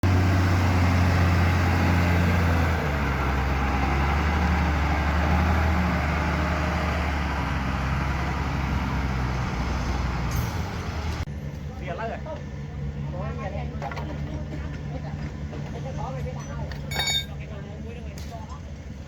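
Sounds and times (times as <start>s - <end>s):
construction machine engine humming: 0.0s - 19.0s.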